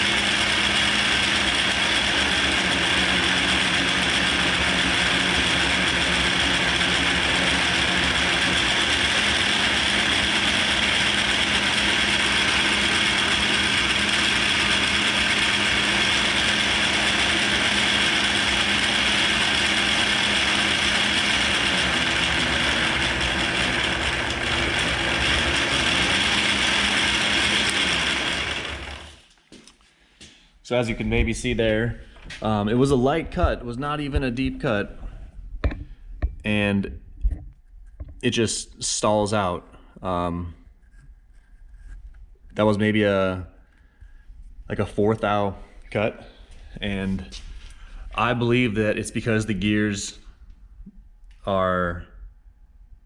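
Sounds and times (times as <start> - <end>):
lathe gear noise: 0.0 - 29.3.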